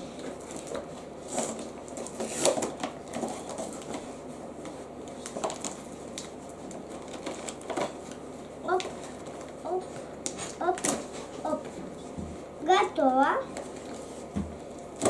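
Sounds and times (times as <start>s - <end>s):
packaging rustling: 0.4s - 9.6s.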